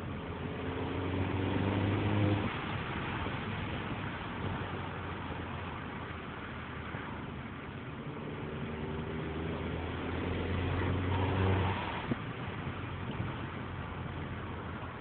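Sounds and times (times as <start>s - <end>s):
car engine accelerating: 0.0s - 3.4s, 7.8s - 15.0s
road noise: 0.0s - 15.0s.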